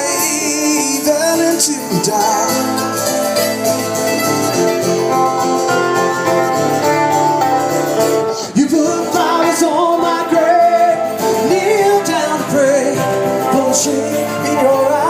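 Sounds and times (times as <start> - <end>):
person singing: 0.0 - 3.3, 8.2 - 15.0
guitar playing: 0.0 - 15.0.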